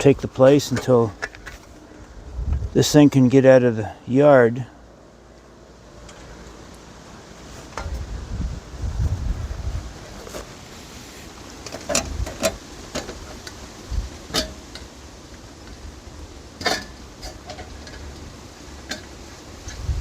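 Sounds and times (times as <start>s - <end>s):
wind rumble on microphone: 2.0s - 2.9s, 7.8s - 10.4s, 12.0s - 12.6s, 13.8s - 14.2s, 19.6s - 20.0s.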